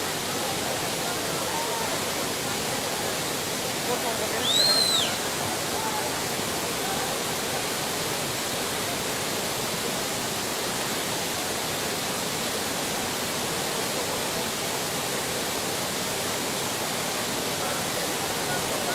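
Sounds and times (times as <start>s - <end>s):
rushing floodwater roar: 0.0s - 18.9s.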